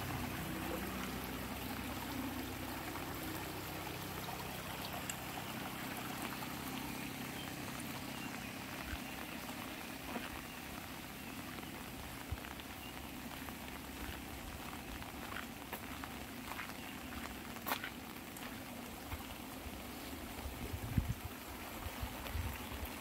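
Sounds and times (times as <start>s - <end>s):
light rain falling: 0.0s - 23.0s
raindrops ticking on an umbrella: 0.0s - 23.0s.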